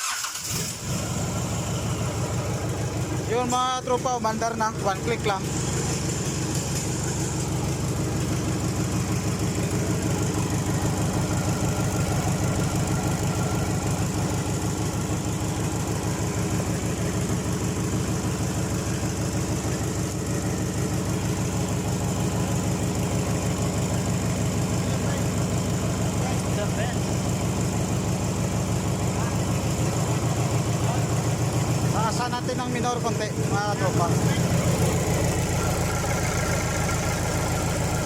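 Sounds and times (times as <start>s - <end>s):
diesel engine idling: 0.0s - 38.0s.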